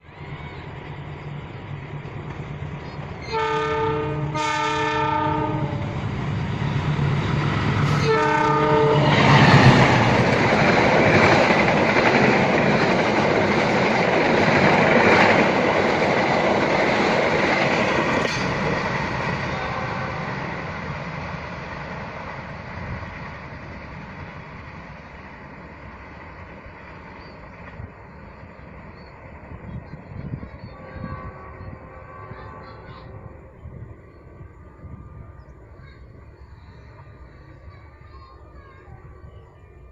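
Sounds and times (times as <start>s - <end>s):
train wheels rumbling on rails: 0.0s - 39.9s
train horn blasts: 3.2s - 6.1s, 7.8s - 9.8s, 19.2s - 20.8s, 30.4s - 34.0s.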